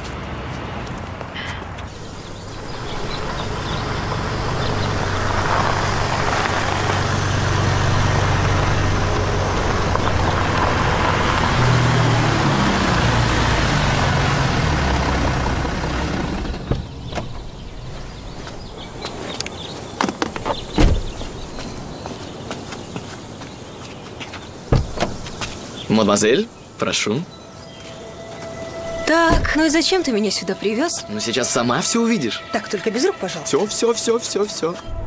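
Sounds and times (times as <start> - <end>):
car engine running: 1.9 - 19.1.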